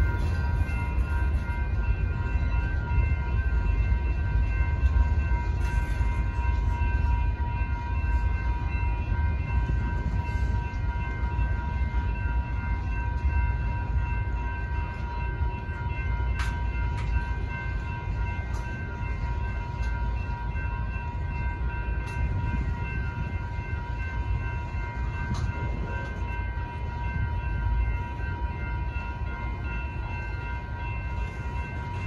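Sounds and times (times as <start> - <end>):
crossing warning bells ringing: 0.0 - 32.0
freight train rumbling past: 0.0 - 32.0.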